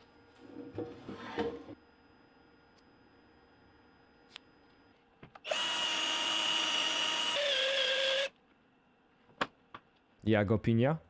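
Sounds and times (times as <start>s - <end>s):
power tool motor running: 5.4s - 8.3s.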